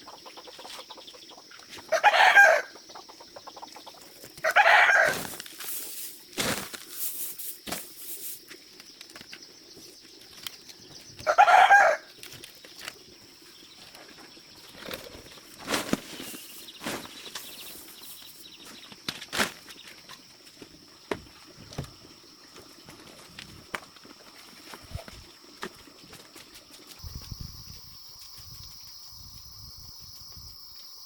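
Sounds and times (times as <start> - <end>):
chicken squawking: 4.4 - 5.2.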